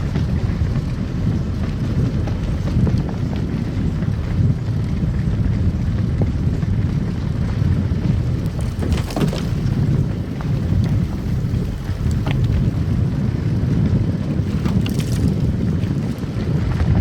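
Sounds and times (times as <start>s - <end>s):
tyre and road rumble: 0.0s - 17.0s.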